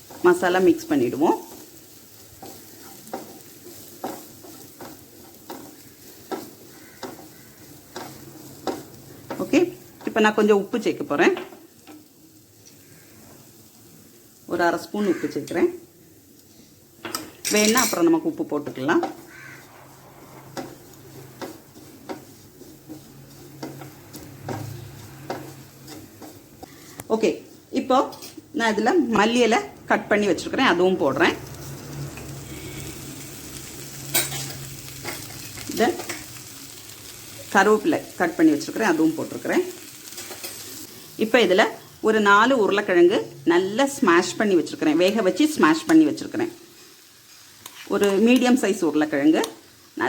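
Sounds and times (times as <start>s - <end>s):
food sizzling in oil: 0.0s - 50.0s
spoon scraping a pan: 1.4s - 10.2s, 17.1s - 28.5s, 31.6s - 37.5s, 38.7s - 41.1s, 46.7s - 48.6s.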